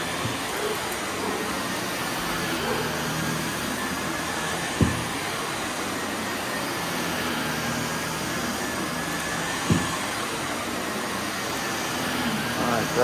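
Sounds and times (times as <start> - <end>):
vacuum cleaner running on carpet: 0.0 - 13.0
low thump: 4.8 - 5.2, 9.7 - 10.1.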